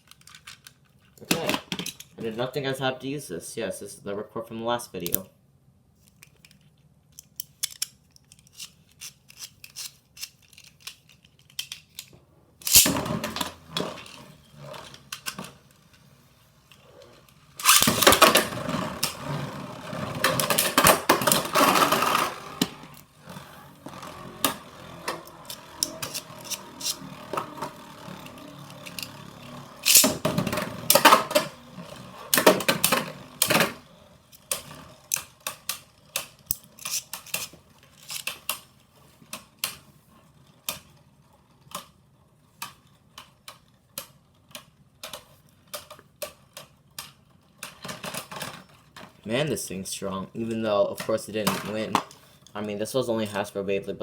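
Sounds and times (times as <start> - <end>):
spinning tops scraping and clattering: 7.3 - 16.0, 16.7 - 38.4
spinning top launch: 12.6 - 14.6, 17.6 - 22.8, 24.3 - 33.9.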